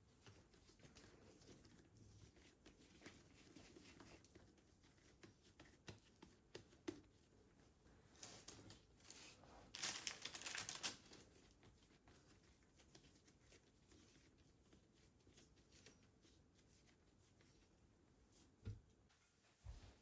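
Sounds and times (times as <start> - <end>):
crinkly rustling: 8.1 - 11.7.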